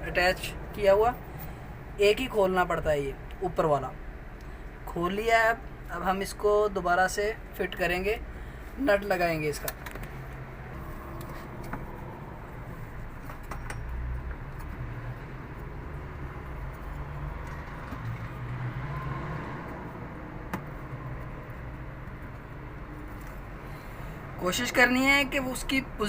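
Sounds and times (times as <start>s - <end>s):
low background rumble and hum: 0.0s - 18.6s.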